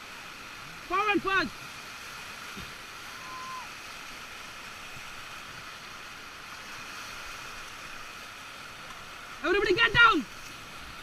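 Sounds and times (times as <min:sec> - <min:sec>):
river rapids rushing: 0:00.0 - 0:11.0.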